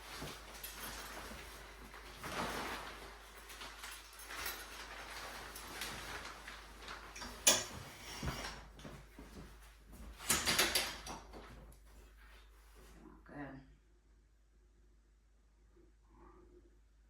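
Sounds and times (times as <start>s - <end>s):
curtain rod hardware rattling: 0.0s - 8.9s, 10.2s - 11.5s.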